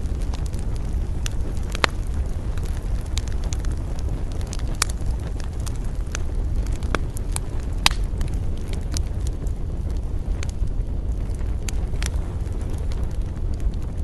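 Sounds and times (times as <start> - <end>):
campfire crackling: 0.0 - 14.0
fire popping: 0.0 - 14.0
steady low rumble: 0.0 - 14.0.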